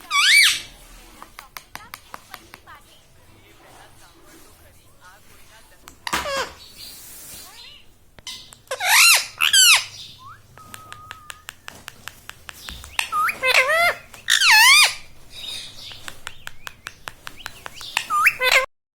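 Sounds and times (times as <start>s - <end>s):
parrot wavering calls: 0.0s - 0.8s, 6.1s - 11.7s, 12.7s - 18.7s
parrot whistle: 0.0s - 0.8s, 8.3s - 11.8s, 12.8s - 18.7s
small clicks: 8.1s - 9.8s, 10.5s - 18.7s.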